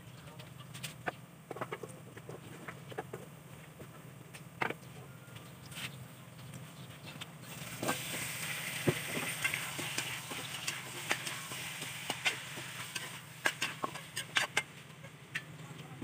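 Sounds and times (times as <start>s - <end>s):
food sizzling in a wok: 7.4s - 15.5s.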